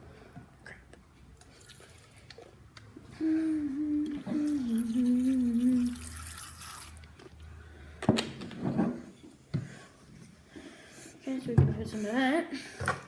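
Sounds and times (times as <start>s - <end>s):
person humming: 3.1s - 6.2s.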